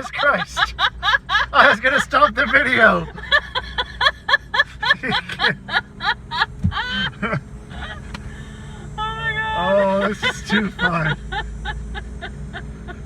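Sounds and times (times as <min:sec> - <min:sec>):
person laughing hard: 0:00.0 - 0:08.2, 0:09.6 - 0:13.0.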